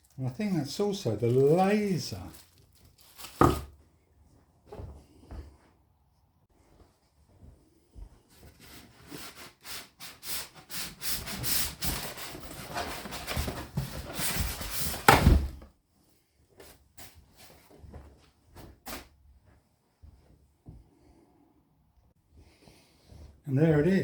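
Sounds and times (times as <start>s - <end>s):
cardboard box scraping and rubbing: 8.5s - 15.1s.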